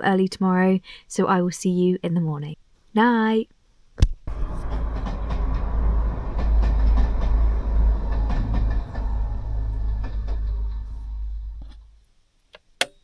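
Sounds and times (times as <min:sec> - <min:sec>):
train rumbling past: 0:04.3 - 0:12.0
wheels clattering on track: 0:04.3 - 0:12.0.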